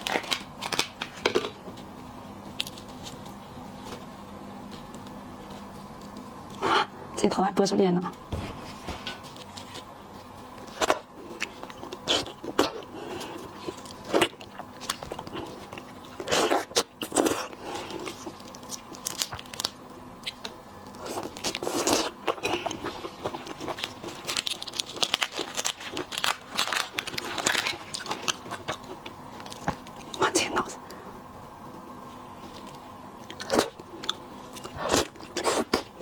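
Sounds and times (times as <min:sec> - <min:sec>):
shrimp shells cracking: 0:23.2 - 0:28.8.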